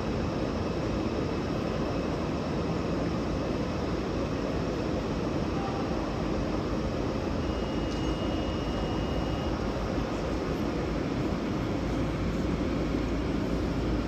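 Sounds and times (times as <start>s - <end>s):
train equipment hum and rush: 0.0s - 14.0s
faint thin high tone: 5.5s - 6.0s, 7.4s - 9.6s.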